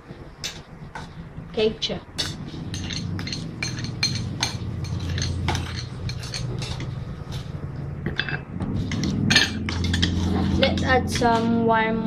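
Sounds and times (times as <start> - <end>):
low hum: 0.0 - 12.0
utensil clinking against a dish: 2.2 - 7.4, 8.1 - 11.5.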